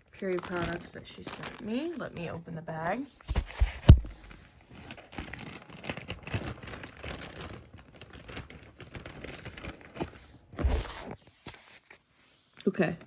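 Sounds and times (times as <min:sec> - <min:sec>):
plastic bag crinkling: 0:00.0 - 0:02.8, 0:03.4 - 0:11.2.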